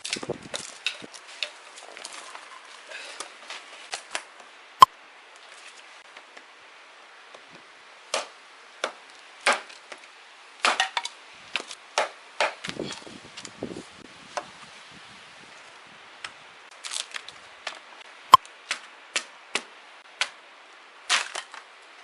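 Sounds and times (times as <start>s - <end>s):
firewood cracking: 0.0s - 4.4s, 8.1s - 13.6s, 16.2s - 20.4s, 21.0s - 22.0s.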